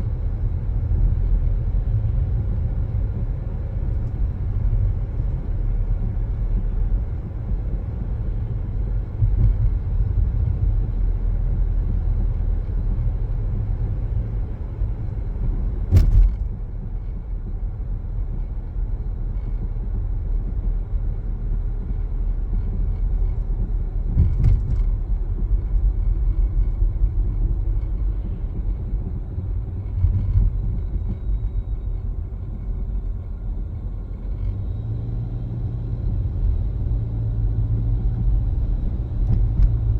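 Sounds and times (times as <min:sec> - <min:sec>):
car driving rumble: 0:00.0 - 0:39.9
sharp thump: 0:15.9 - 0:16.5.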